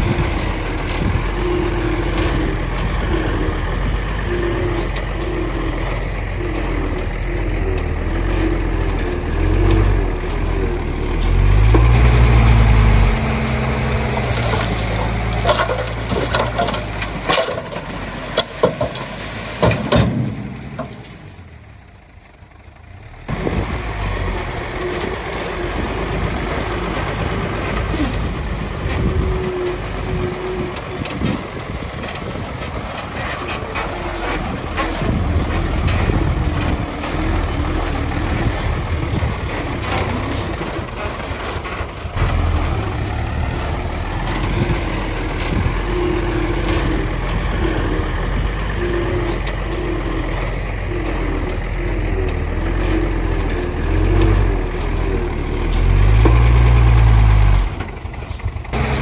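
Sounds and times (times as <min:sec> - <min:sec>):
diesel engine revving: 0:00.0 - 0:59.0
metallic clanks and knocks: 0:13.8 - 0:21.6.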